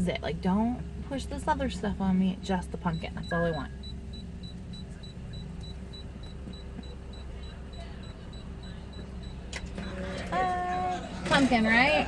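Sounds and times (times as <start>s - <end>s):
car engine idling: 0.0s - 12.0s
faint high beeps: 2.9s - 10.7s.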